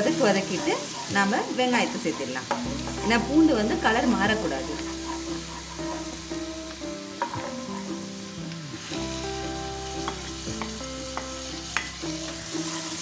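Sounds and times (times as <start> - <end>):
garlic sizzling in hot oil: 0.0 - 13.0
spatula knocking on pan: 7.2 - 7.9.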